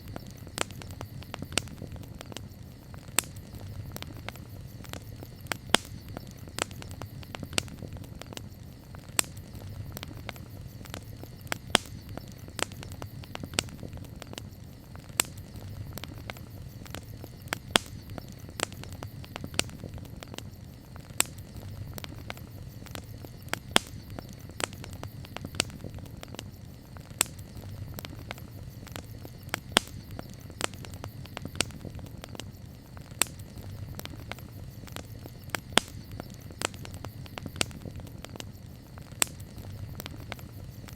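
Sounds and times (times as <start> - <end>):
campfire rumble: 0.0 - 40.9
wood crackling and popping: 0.0 - 40.9.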